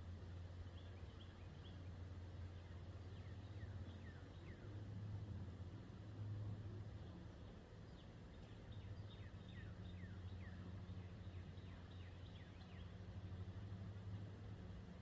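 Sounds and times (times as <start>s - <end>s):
low steady hum: 0.0s - 15.0s
faint bird chirps: 0.6s - 4.8s.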